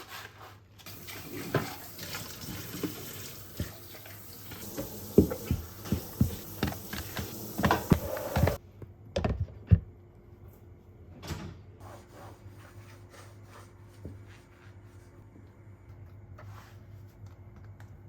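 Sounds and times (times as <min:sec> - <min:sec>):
water running from a tap: 0:00.9 - 0:08.6.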